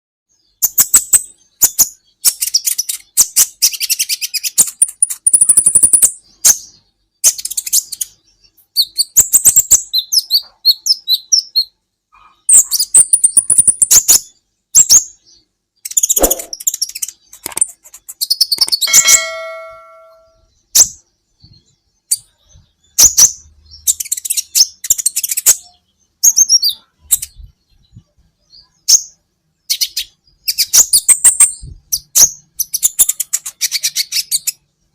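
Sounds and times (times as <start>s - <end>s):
bird chirping and trilling: 0.3s - 34.7s
brief ringing tone: 18.9s - 20.4s.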